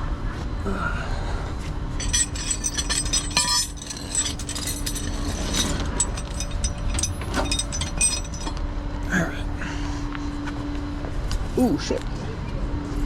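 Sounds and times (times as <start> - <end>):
metal tow gear clinking: 2.0 - 8.6.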